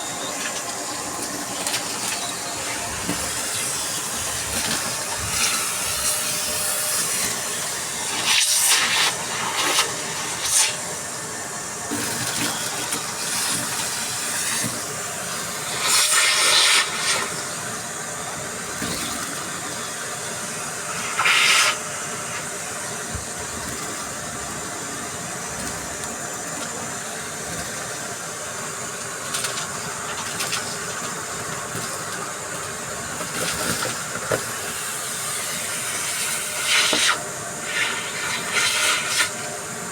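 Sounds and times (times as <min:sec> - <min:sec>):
vacuum cleaner sucking debris: 0:00.0 - 0:39.9.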